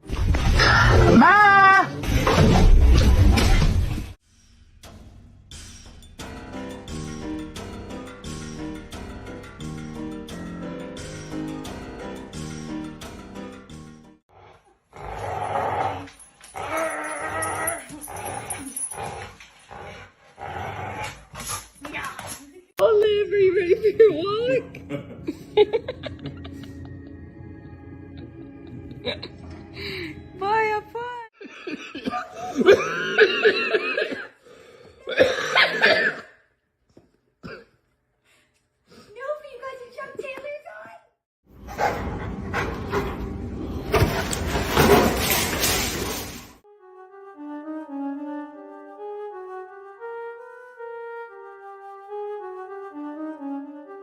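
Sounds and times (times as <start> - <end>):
dog yowling and grumbling: 16.5 - 18.8.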